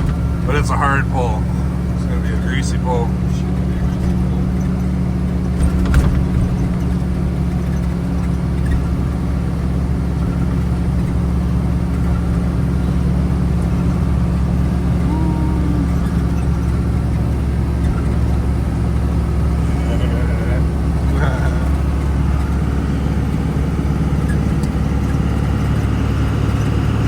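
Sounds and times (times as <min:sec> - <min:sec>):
diesel truck engine running: 0:00.0 - 0:27.0.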